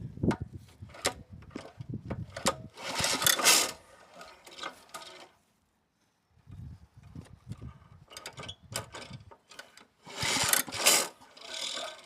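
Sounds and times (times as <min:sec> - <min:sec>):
recoil starter cord whirr: 0:02.4 - 0:05.0, 0:10.0 - 0:12.0.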